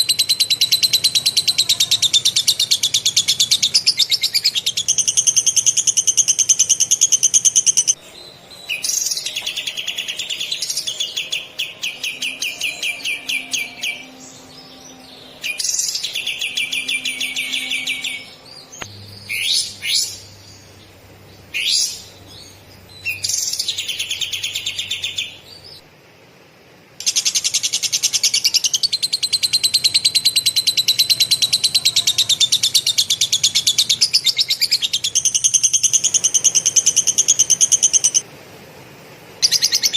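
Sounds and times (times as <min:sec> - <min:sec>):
sharp rising bird chirps: 0:00.0 - 0:25.8.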